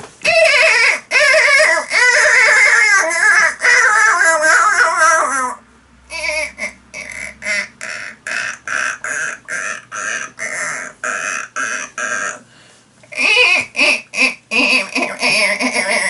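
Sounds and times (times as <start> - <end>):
man imitating animal call: 0.2 - 16.0
short grunting squeaks: 13.0 - 16.0.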